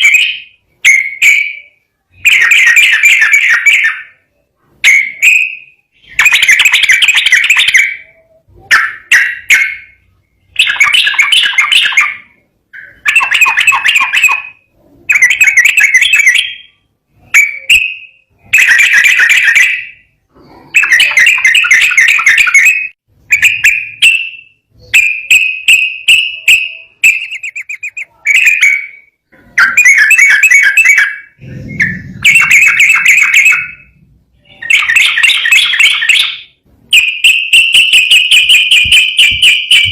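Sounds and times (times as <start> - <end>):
bird fast trill: 0.0 - 39.9
bulbul singing bubbly phrases: 26.0 - 36.2.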